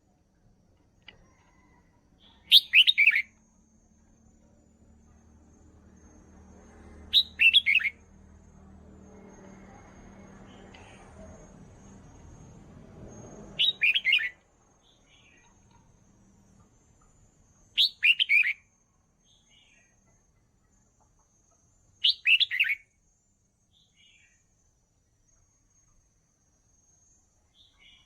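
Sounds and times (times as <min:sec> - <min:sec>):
bird singing warbled phrases: 0:02.4 - 0:03.3, 0:07.1 - 0:08.0, 0:13.6 - 0:15.7, 0:17.8 - 0:18.6, 0:22.0 - 0:22.8.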